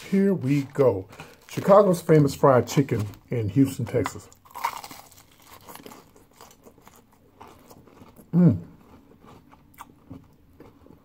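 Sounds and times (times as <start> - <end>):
person chewing crispy food: 0.0 - 11.0.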